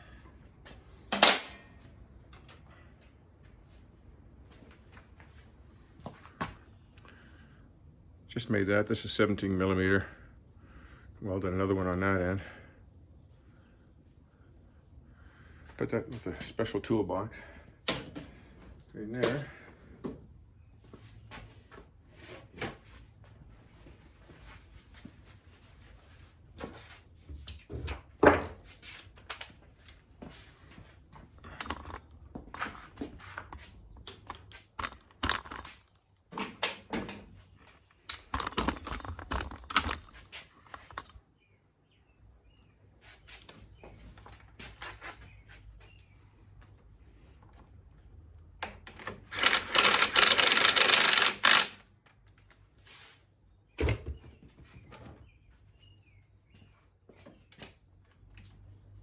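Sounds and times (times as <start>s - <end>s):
metal parts knocking and clinking: 34.0s - 35.7s, 38.1s - 41.2s.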